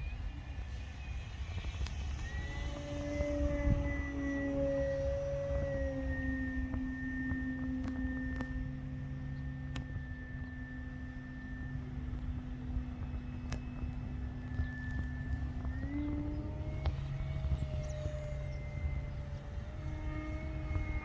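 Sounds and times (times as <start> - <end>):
model plane motor whine: 0.0 - 21.0
wind rumble on microphone: 0.0 - 21.0.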